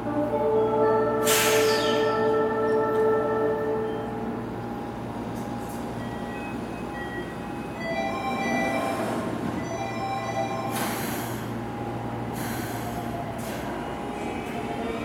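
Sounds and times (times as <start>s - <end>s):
train humming: 0.0s - 15.0s
compressed air hisses: 1.2s - 1.9s.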